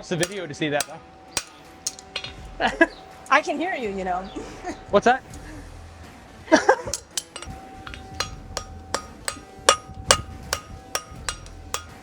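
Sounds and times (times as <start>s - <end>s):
hammer ringing on anvil: 0.0s - 2.4s, 6.9s - 12.0s.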